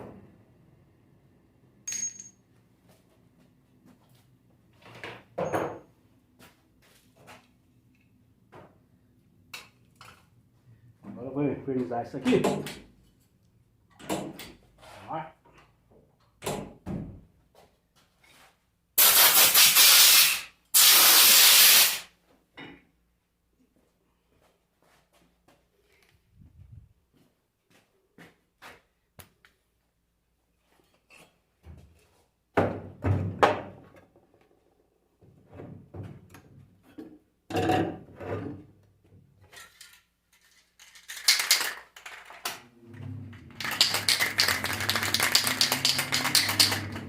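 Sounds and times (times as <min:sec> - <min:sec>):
metallic clinks with ringing: 0:01.9 - 0:02.4
spray can hissing: 0:19.0 - 0:22.1.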